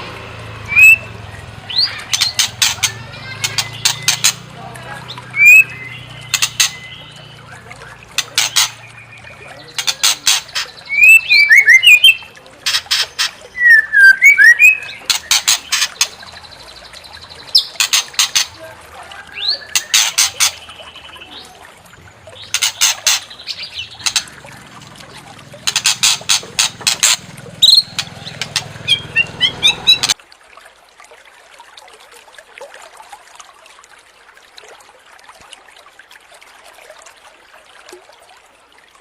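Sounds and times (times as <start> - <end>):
bird harsh ticking chatter: 0.7 - 21.6, 22.3 - 30.2.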